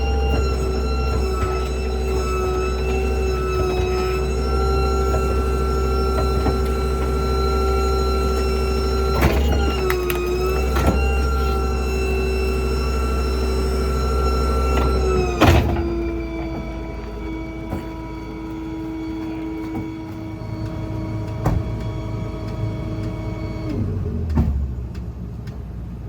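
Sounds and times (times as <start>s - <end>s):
hydraulic packer whine: 0.0s - 24.8s
debris cracking: 9.0s - 12.0s
loud crunch: 9.0s - 12.0s.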